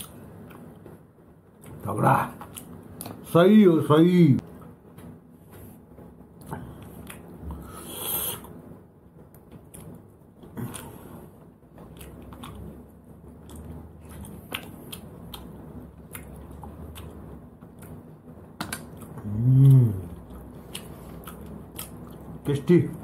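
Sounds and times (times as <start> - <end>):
faint chewing: 6.4 - 8.6, 9.3 - 23.0
person humming mmm: 7.5 - 8.5, 19.1 - 20.4.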